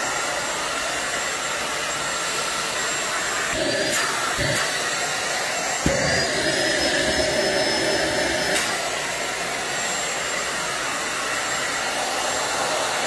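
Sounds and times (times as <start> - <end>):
stick vacuum cleaner whooshing: 2.8 - 9.3.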